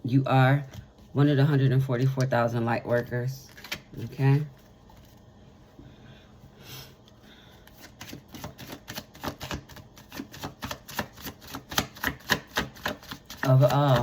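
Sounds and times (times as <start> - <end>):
cards being shuffled by hand: 3.0 - 5.3, 7.0 - 14.0.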